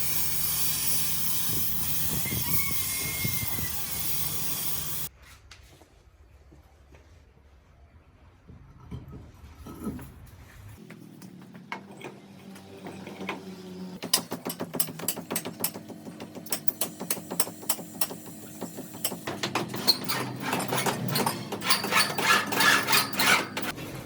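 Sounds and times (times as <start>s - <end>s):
rapid mechanical clicking: 14.0s - 23.8s.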